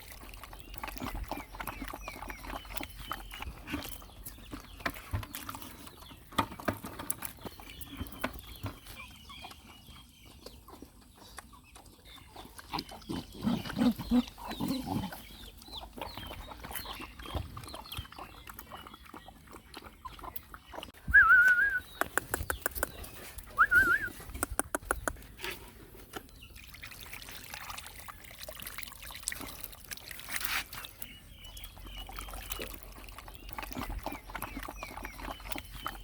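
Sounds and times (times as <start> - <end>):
dogs eating wet clicks: 0.0 - 36.0
dog whining: 21.1 - 21.8, 23.6 - 24.1.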